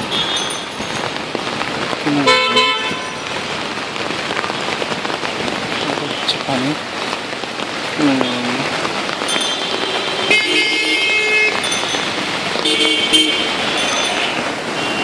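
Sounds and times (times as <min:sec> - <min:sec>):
steady rain: 0:00.0 - 0:15.0
vehicle horns honking: 0:02.2 - 0:03.2, 0:09.5 - 0:11.6, 0:12.2 - 0:15.0.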